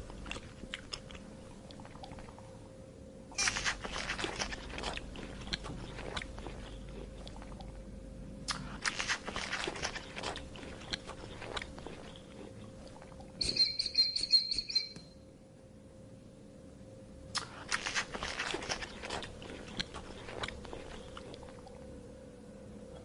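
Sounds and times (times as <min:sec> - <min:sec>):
animal chewing crunchy food: 0:00.0 - 0:02.4, 0:03.4 - 0:07.8, 0:08.5 - 0:13.6, 0:17.4 - 0:21.9
pulsed chirping call: 0:13.4 - 0:15.2.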